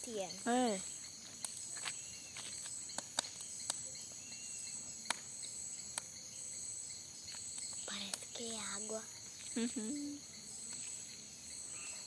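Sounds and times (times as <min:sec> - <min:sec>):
bonfire wood cracking: 0:00.0 - 0:06.2, 0:07.2 - 0:08.6
crickets chirring: 0:00.0 - 0:12.0.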